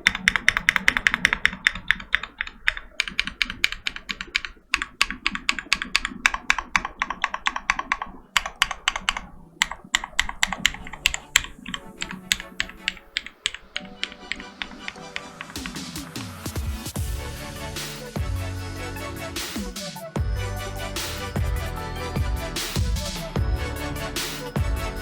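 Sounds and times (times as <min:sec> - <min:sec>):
mechanical keyboard typing: 0:00.0 - 0:16.0
electronic music: 0:10.5 - 0:25.0.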